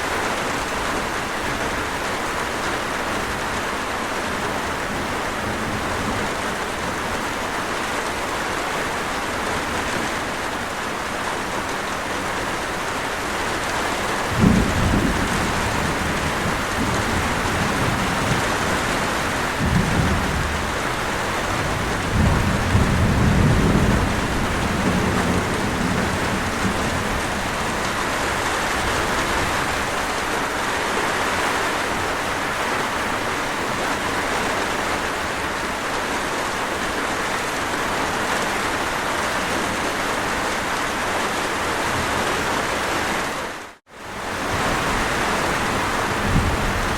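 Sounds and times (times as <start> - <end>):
heavy rain: 0.0 - 46.9
thunder rumbling: 13.4 - 30.2, 44.2 - 46.9.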